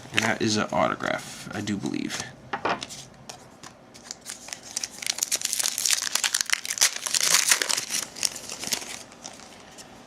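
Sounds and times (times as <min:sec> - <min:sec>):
foil wrapper tearing and crinkling: 0:04.1 - 0:09.6.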